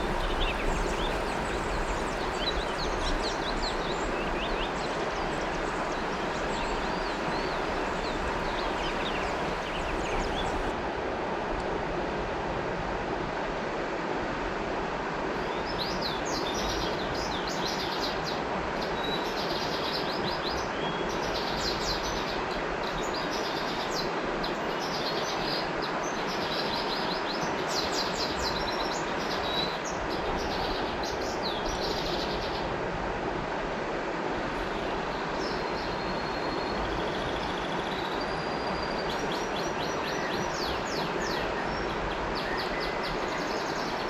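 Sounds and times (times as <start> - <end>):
birds chirping: 0.0 - 10.7
river water rushing: 0.0 - 44.0.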